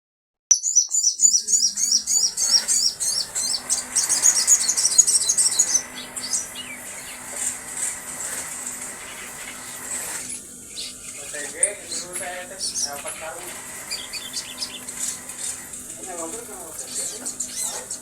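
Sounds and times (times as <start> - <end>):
songbird chirping: 0.5 - 7.4, 10.7 - 15.7.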